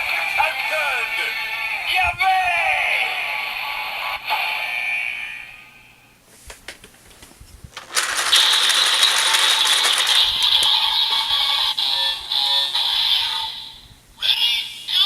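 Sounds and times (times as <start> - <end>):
rapid plastic ratcheting: 6.7 - 11.3
plastic clicks: 7.8 - 11.0
toy belt electronic sound: 7.9 - 13.5.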